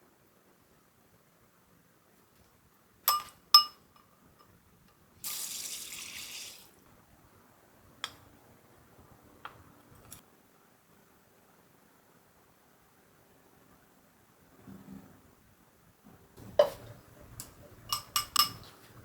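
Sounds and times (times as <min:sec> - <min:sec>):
glass clinks: 0:03.1 - 0:03.8, 0:17.9 - 0:18.7.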